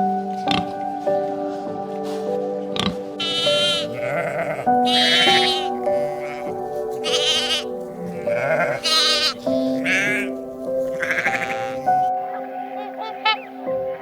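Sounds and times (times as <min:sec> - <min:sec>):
background music: 0:00.0 - 0:14.0
sheep or goat bleating: 0:03.2 - 0:12.1.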